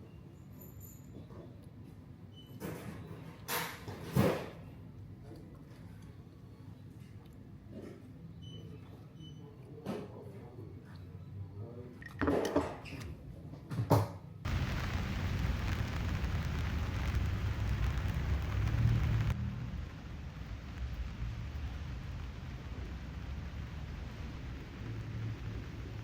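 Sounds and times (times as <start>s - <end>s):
heavy rain on a van: 14.5s - 26.0s.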